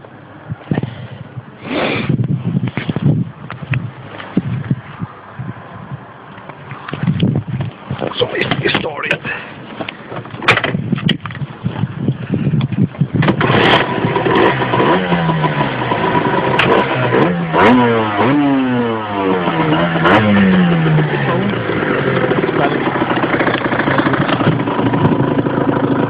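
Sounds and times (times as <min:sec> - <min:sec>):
two-stroke engine revving: 0:13.2 - 0:26.0
engine clattering knocks: 0:19.9 - 0:26.0.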